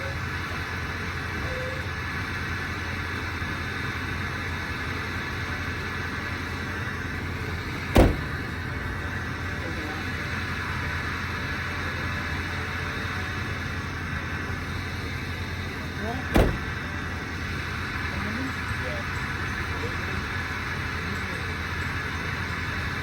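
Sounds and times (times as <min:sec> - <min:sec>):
engine rumble: 0:00.0 - 0:23.0
loud thump: 0:07.9 - 0:08.4, 0:16.3 - 0:16.8.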